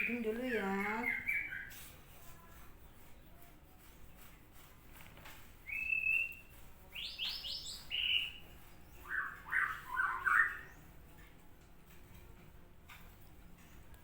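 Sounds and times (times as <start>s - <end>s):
bird chirping: 0.0s - 1.9s, 5.6s - 11.0s.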